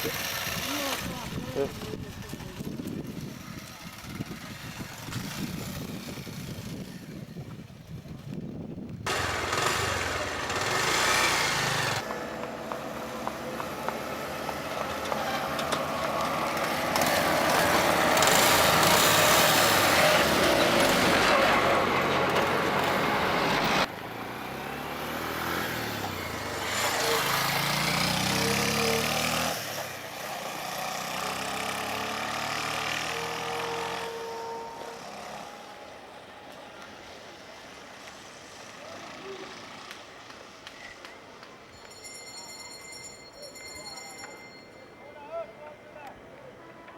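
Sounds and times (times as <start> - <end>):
motorcycle engine running: 0.0 - 21.2
wind and road noise: 0.0 - 42.2.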